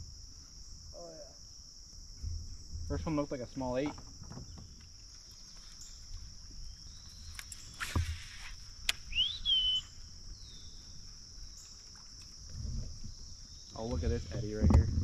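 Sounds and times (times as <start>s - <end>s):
insect chorus buzzing: 0.0s - 15.0s
rising bird call: 9.0s - 10.6s.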